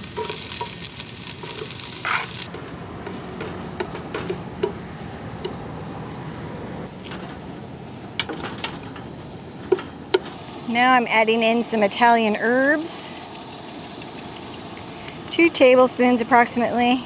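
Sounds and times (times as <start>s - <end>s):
onions sizzling in a pot: 0.0s - 2.5s.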